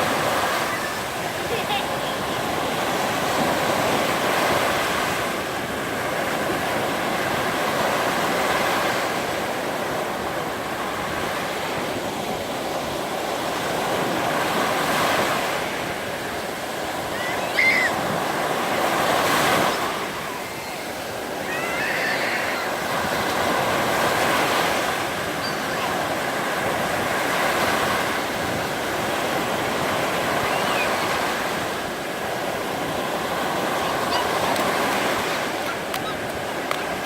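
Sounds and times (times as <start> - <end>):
surf breaking on beach: 0.0 - 37.0.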